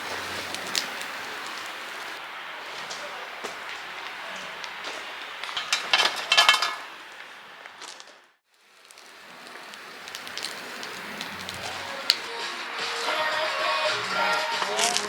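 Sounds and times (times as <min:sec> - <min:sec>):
steady hiss: 0:00.0 - 0:15.0
wood fire crackling: 0:00.0 - 0:15.0
dishes and cutlery clinking: 0:05.5 - 0:06.9.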